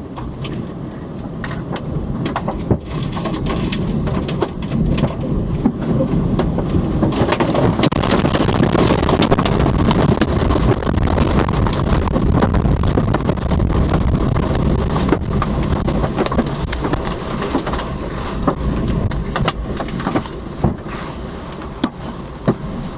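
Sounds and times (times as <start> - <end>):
heavy rain: 1.3 - 22.9
sharp clicks and knocks: 1.4 - 20.8
strong wind rushing: 6.2 - 21.5.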